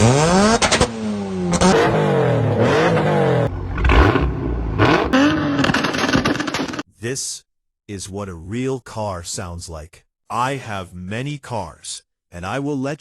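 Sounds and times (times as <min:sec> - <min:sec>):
car engines revving hard: 0:00.0 - 0:06.8.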